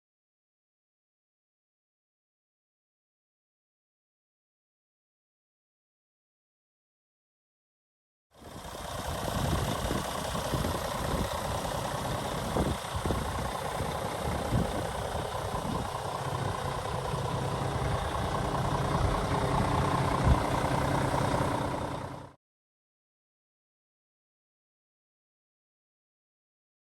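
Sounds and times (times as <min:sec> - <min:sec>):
diesel truck engine idling: 0:08.4 - 0:22.4.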